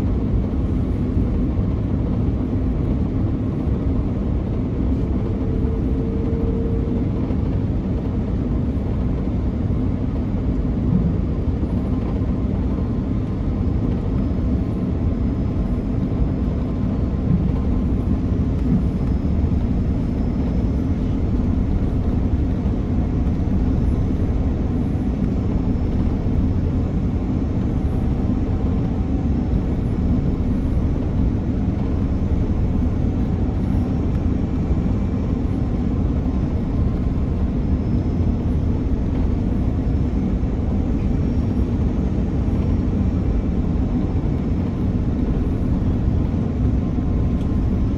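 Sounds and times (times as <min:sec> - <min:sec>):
airplane cabin engine rumble: 0:00.0 - 0:47.9
thin engine whine: 0:15.4 - 0:44.0.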